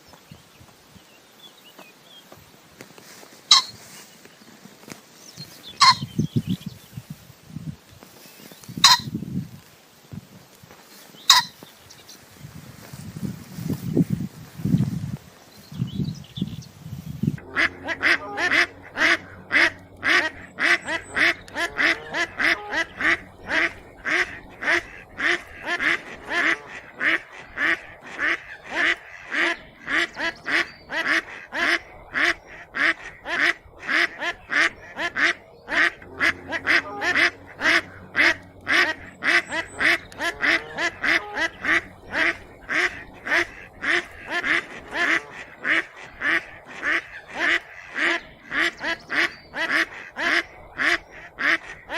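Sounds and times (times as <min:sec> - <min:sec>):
ducks quacking: 0:03.1 - 0:04.0, 0:05.6 - 0:06.6, 0:08.7 - 0:09.2, 0:11.3 - 0:11.6, 0:17.2 - 0:51.9.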